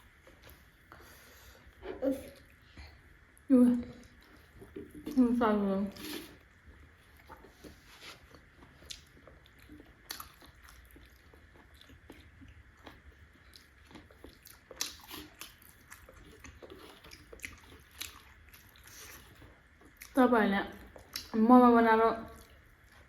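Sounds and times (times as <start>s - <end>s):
wet chewing and smacking: 6.0s - 21.4s, 22.2s - 23.0s.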